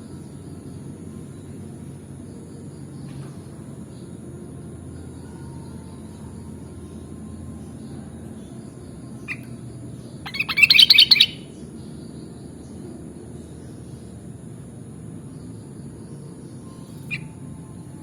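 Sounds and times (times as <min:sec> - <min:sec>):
low background hum: 0:00.0 - 0:18.0
bulbul calling: 0:09.2 - 0:11.6, 0:16.7 - 0:17.4.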